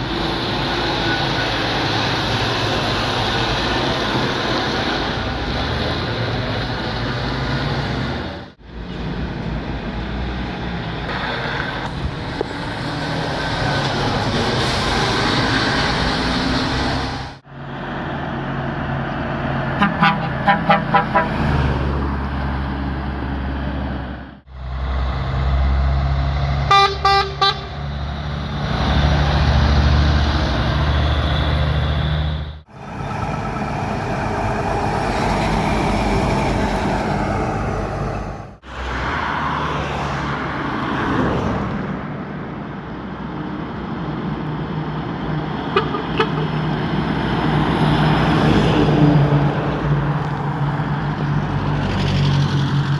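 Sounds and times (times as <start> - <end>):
trucks passing: 0.0 - 52.9
truck horn toots: 19.8 - 21.6, 26.6 - 27.8, 45.8 - 46.6.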